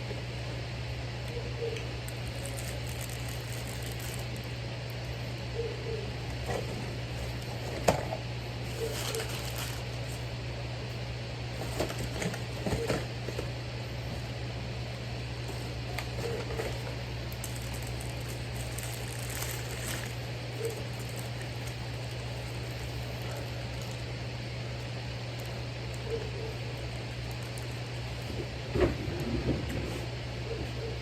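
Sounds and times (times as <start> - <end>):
food packaging crinkling: 2.1 - 4.6, 8.7 - 10.3, 16.0 - 24.1, 26.7 - 28.2.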